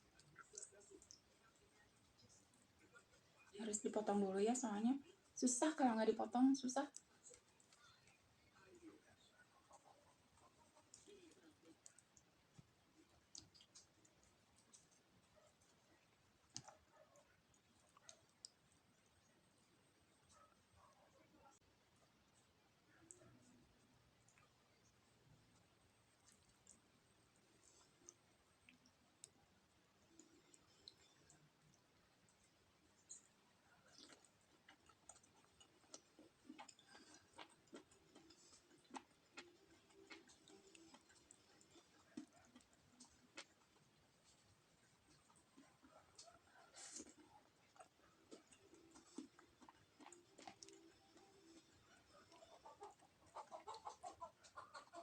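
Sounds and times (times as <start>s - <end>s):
clicks and taps of eating: 0.0s - 3.5s, 9.7s - 19.2s, 30.0s - 55.0s.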